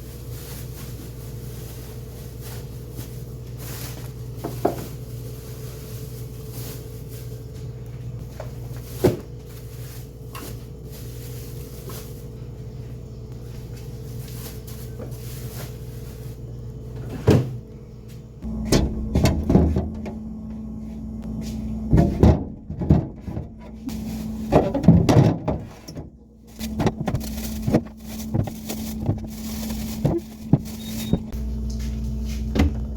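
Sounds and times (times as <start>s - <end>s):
steady low hum: 0.0s - 32.9s
refrigerator shelves knocking: 17.0s - 17.6s, 18.5s - 20.6s, 21.4s - 31.3s, 32.5s - 32.9s.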